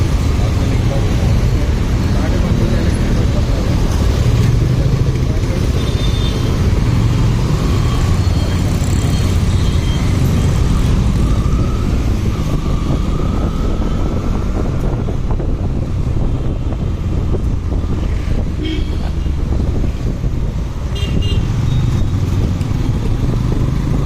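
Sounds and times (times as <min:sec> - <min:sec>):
wind rush on microphone: 0:09.2 - 0:24.0.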